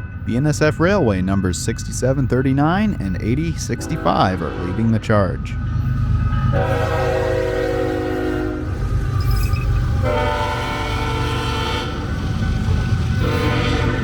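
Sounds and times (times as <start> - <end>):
diesel locomotive engines rumbling: 0.0 - 14.0
multi-note train air horn: 3.8 - 5.0, 6.5 - 12.1, 13.2 - 14.0.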